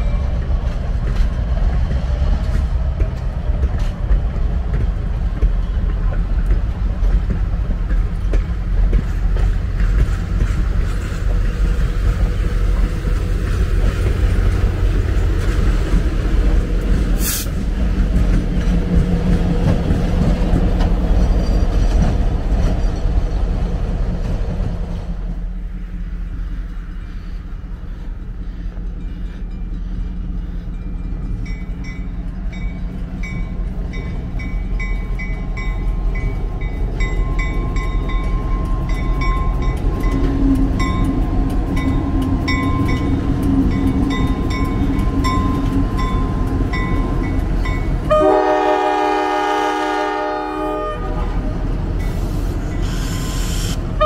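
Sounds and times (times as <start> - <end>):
approaching train rumble: 0.0 - 54.0
high hiss: 17.2 - 17.6
locomotive air horn: 48.1 - 51.5, 52.8 - 54.0.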